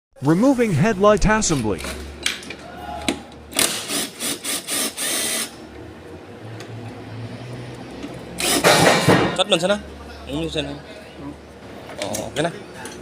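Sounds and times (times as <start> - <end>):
power drill running: 3.6 - 5.6, 8.4 - 8.8.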